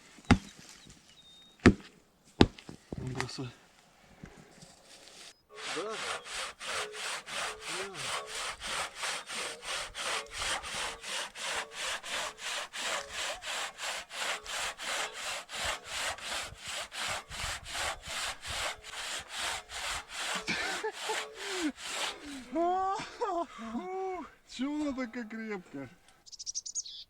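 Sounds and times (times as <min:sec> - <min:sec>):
hand saw cutting log: 0:04.8 - 0:23.4.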